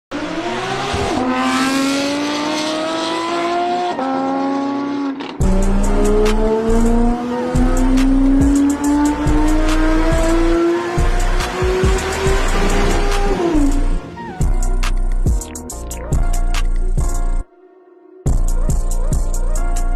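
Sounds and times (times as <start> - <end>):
car engine accelerating: 0.1 - 14.6.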